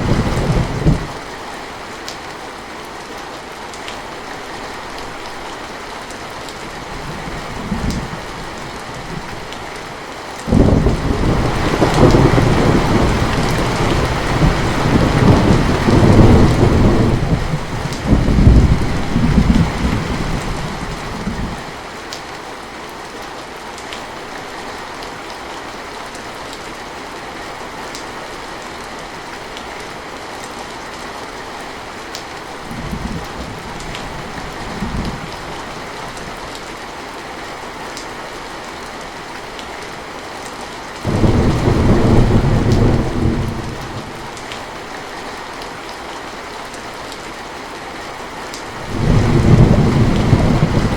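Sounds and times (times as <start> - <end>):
rolling thunder: 0.0 - 1.2, 10.5 - 21.6, 41.1 - 44.4, 48.8 - 50.9
heavy rain falling: 0.0 - 50.9.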